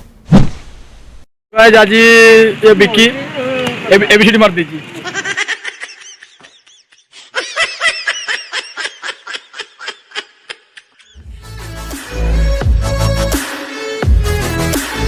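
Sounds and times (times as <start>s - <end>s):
high-pitched giggling: 5.0s - 11.2s.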